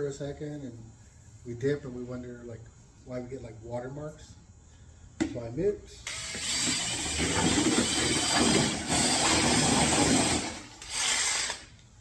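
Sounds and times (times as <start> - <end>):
glaze churning in a bucket: 6.6 - 11.5.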